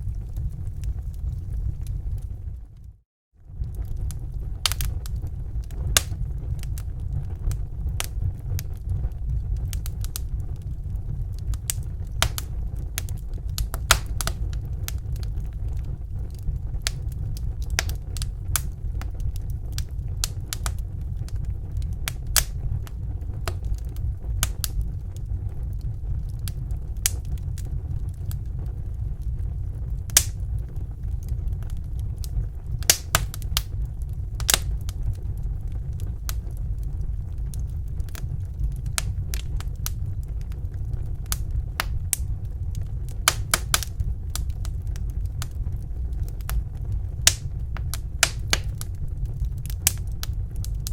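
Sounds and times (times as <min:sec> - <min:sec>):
low fire rumble: 0:00.0 - 0:50.9
wood fire crackling: 0:00.0 - 0:50.9.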